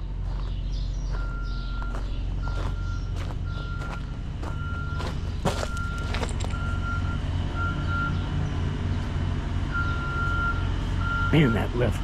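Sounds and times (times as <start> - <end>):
engine running: 0.0 - 12.0
motion alarm beeping: 1.2 - 8.2, 9.7 - 12.0.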